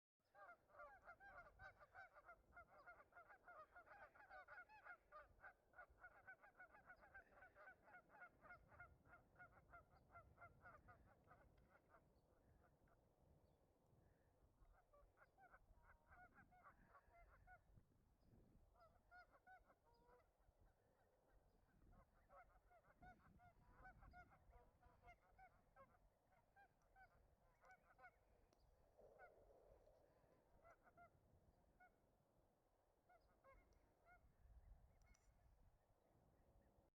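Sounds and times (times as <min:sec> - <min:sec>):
geese honking: 0:00.4 - 0:11.4, 0:22.0 - 0:28.2.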